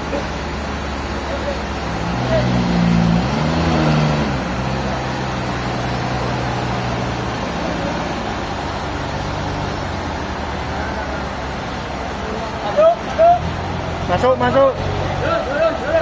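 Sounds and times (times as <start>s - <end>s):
large engine running: 0.0s - 16.0s.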